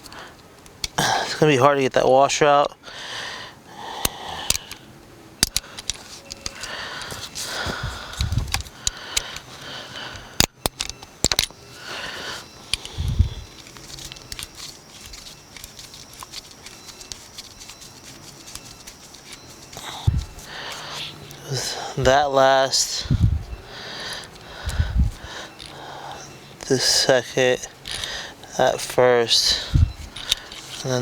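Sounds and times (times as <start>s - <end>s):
clicks and rustling: 5.4s - 23.1s, 24.0s - 31.0s.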